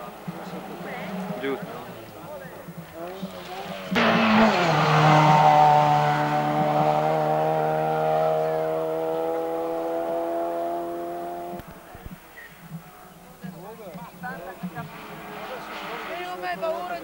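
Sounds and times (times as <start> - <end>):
car engine at high revs: 0.0 - 2.2, 3.1 - 12.2.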